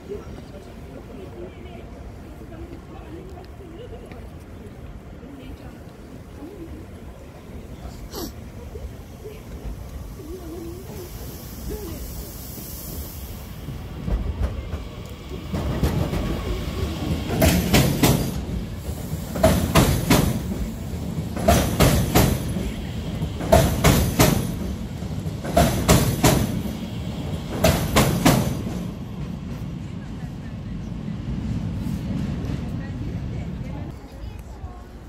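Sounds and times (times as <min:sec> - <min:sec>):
train rumbling past: 0:00.0 - 0:35.0
train wheels clattering over rail joints: 0:15.5 - 0:26.8, 0:27.4 - 0:29.6.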